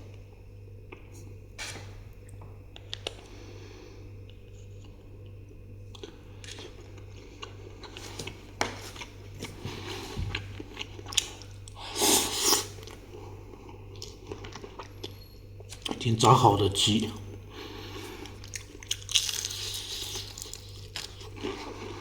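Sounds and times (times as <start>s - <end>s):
crunching fried chicken: 17.9s - 22.0s.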